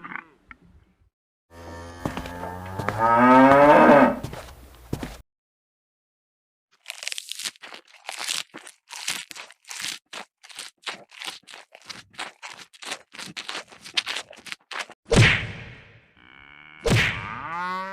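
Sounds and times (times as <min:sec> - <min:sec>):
crunching scraping strokes: 0:06.8 - 0:15.0.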